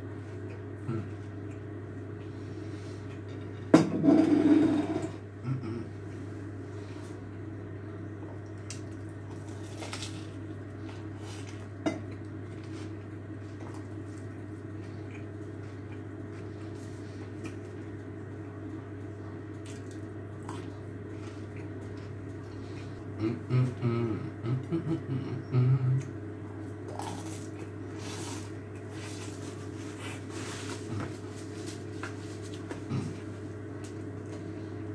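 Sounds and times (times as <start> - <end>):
steady low hum: 0.0 - 34.9
chewing crunchy bread: 8.1 - 34.9.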